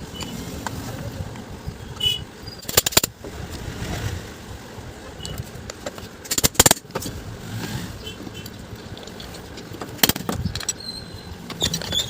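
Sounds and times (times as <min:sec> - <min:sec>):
tools clicking on metal housing: 0:08.8 - 0:12.0.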